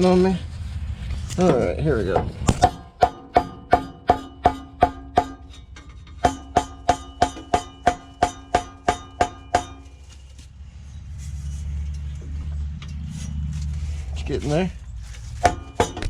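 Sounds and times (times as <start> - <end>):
low rumble: 0.0 - 7.8, 9.9 - 15.4
hammer blows on metal pipe: 2.1 - 10.0.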